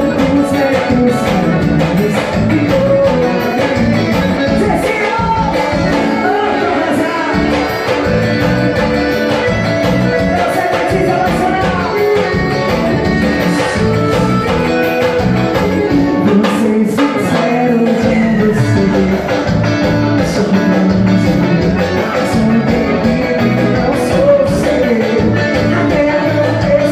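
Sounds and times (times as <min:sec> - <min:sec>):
forro dance music: 0:00.0 - 0:26.9
person singing: 0:00.0 - 0:26.9.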